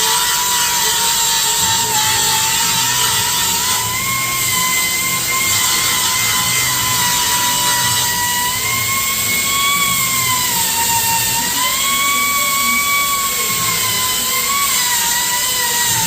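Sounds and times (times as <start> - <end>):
electric power tool whining: 0.0 - 16.0.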